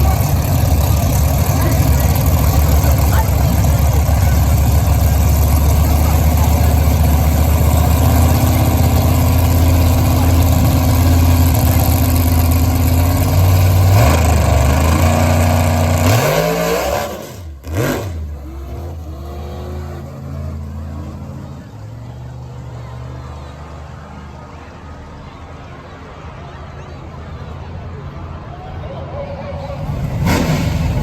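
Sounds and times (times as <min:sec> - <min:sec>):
drag car engine revving: 0:00.0 - 0:22.6, 0:29.6 - 0:31.0
quieter engine running: 0:00.0 - 0:23.5, 0:29.1 - 0:31.0.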